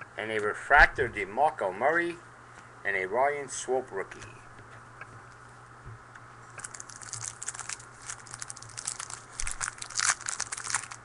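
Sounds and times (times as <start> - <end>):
faint steady hum: 0.0 - 11.0
foil wrapper crinkling and tearing: 6.6 - 11.0.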